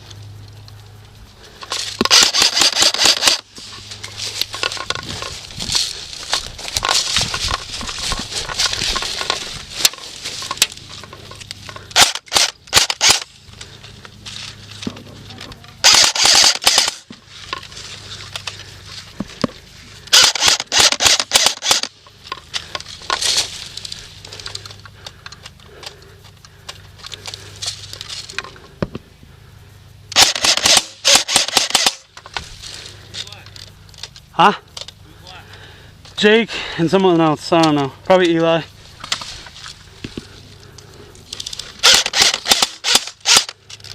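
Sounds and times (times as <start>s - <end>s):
airsoft guns firing bursts: 2.1s - 3.4s, 11.9s - 13.3s, 15.8s - 17.0s, 20.1s - 21.9s, 30.1s - 32.0s, 41.8s - 43.5s.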